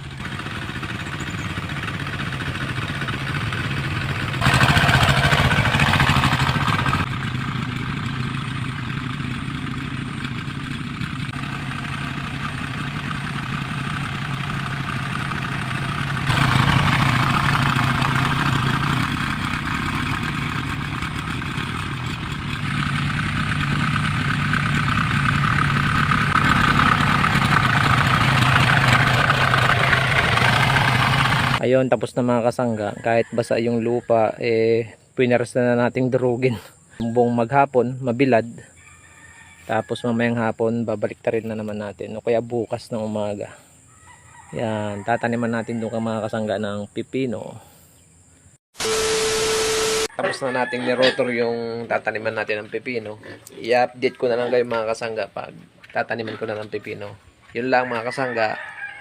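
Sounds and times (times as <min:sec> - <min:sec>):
hand tractor engine running: 0:00.0 - 0:31.6
rotary tiller churning soil: 0:04.1 - 0:07.1, 0:11.2 - 0:31.6.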